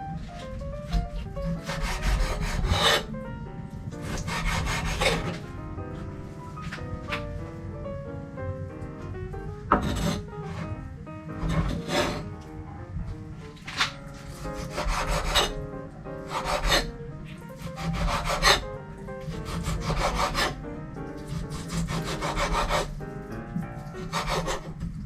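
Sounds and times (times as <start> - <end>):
knife chopping on cutting board: 0.9 - 3.1, 4.0 - 5.4, 9.7 - 10.2, 13.7 - 15.6, 17.6 - 18.6, 19.2 - 20.6, 21.3 - 23.0, 24.0 - 24.8.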